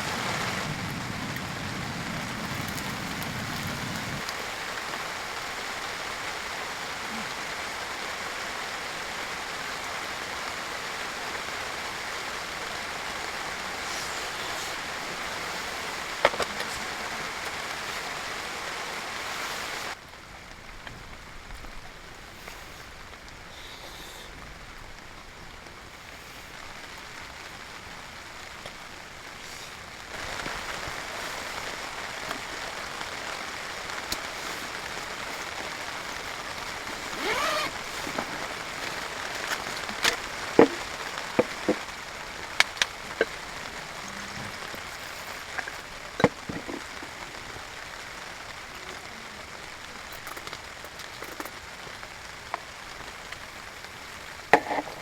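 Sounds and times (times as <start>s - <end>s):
fire pops and crackles: 0.0s - 7.8s, 24.7s - 49.1s, 49.8s - 55.0s
wood fire hissing: 0.0s - 55.0s.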